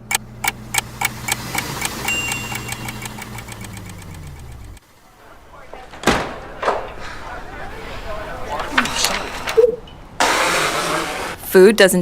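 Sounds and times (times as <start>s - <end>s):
mechanical ticking: 0.0s - 4.8s
motor hum: 0.0s - 9.7s.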